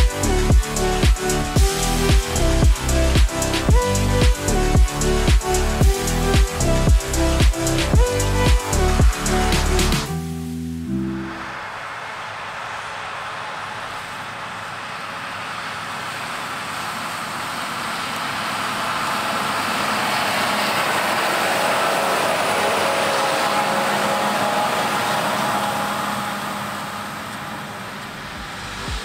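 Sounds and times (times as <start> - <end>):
harvest machinery passing by: 11.2 - 29.0.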